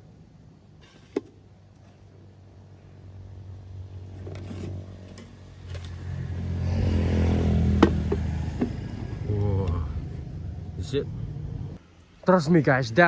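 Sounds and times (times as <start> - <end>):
vehicle engine passing by: 3.0 - 11.8.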